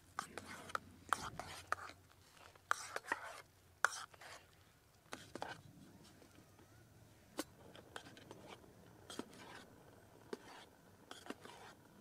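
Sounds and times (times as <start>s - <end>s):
quiet hiss: 0.0s - 12.0s
light scrapes: 0.2s - 6.3s, 10.4s - 11.8s.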